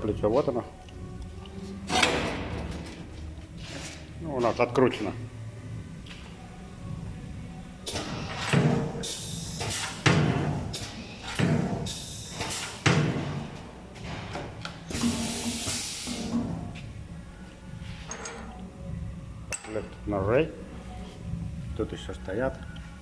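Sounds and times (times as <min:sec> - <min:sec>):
air hiss bursts: 0:09.0 - 0:10.1, 0:11.8 - 0:12.9, 0:14.9 - 0:16.4.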